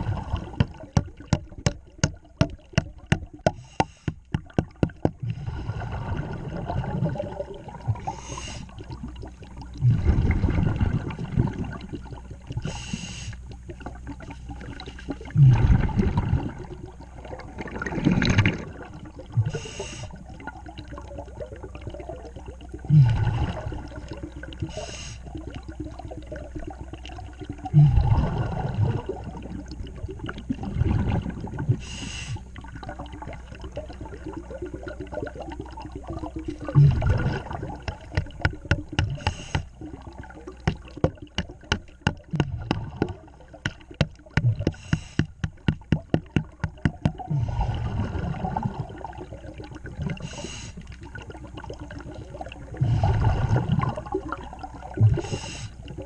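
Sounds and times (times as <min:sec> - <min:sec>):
bubbling rush: 0:00.0 - 0:12.2, 0:14.0 - 0:24.8, 0:25.5 - 0:32.0, 0:32.6 - 0:50.4, 0:51.1 - 0:56.0
diver breathing through regulator: 0:03.5 - 0:04.3, 0:08.0 - 0:08.8, 0:12.6 - 0:13.4, 0:19.4 - 0:20.2, 0:24.6 - 0:25.3, 0:31.8 - 0:32.5, 0:39.0 - 0:39.8, 0:44.5 - 0:45.6, 0:50.2 - 0:50.9, 0:55.1 - 0:55.8.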